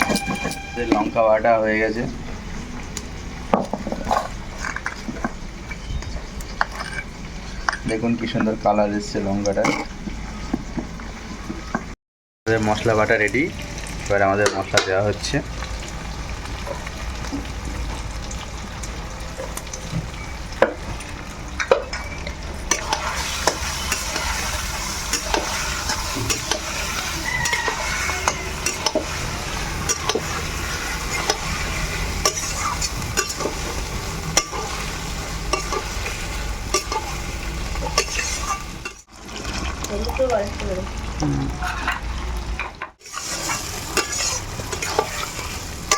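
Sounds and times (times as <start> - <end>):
meat sizzling in a pan: 12.6 - 41.2, 43.0 - 45.9
spatula scraping a pan: 22.7 - 39.1, 43.0 - 45.9.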